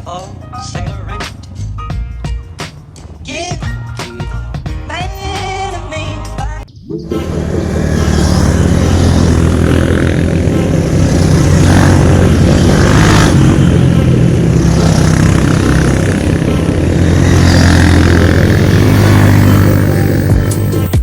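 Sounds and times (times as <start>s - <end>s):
dirt bike engine running: 7.1s - 21.0s.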